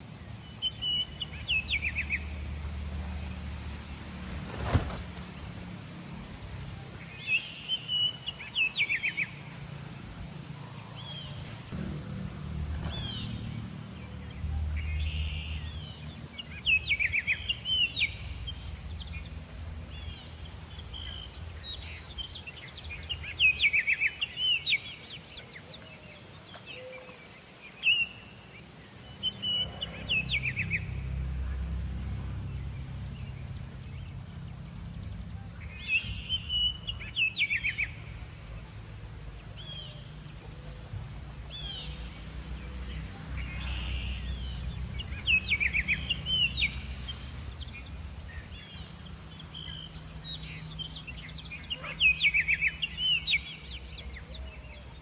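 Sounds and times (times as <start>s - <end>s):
birds chirping: 0.0s - 55.0s
low background rumble: 9.3s - 23.4s.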